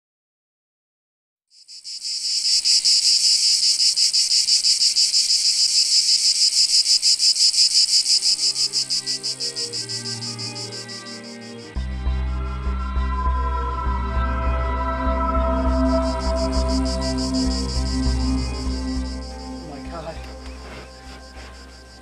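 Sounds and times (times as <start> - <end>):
cicadas buzzing: 1.5 - 12.2, 14.9 - 22.0
low sustained music tones: 8.1 - 22.0.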